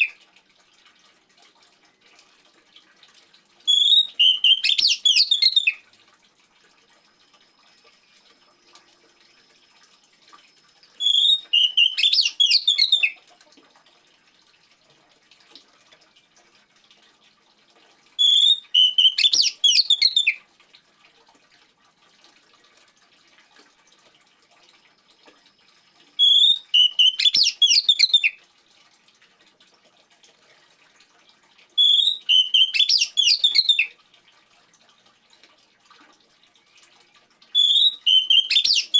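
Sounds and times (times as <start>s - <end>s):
faint trickling water: 0.0s - 38.9s
bird whistling song: 3.7s - 5.8s, 11.0s - 13.2s, 18.2s - 20.4s, 26.2s - 28.4s, 31.8s - 33.9s, 37.6s - 38.9s.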